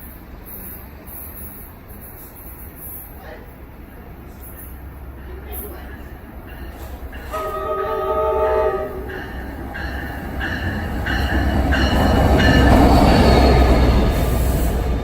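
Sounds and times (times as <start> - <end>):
train approaching rumble: 0.0 - 15.0
train horn chord: 7.3 - 9.2.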